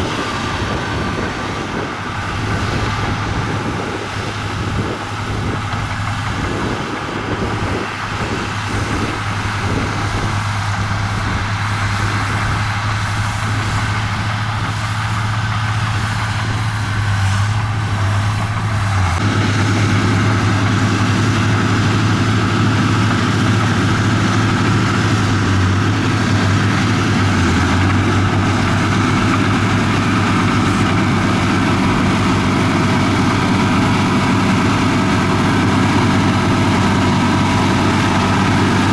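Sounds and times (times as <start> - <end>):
diesel engine humming: 0.0 - 38.9.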